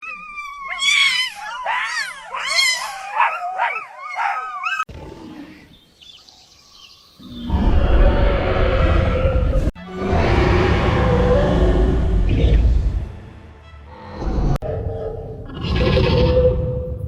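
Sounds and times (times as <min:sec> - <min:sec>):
shrill wavering cartoon animal cries: 0:00.0 - 0:04.9.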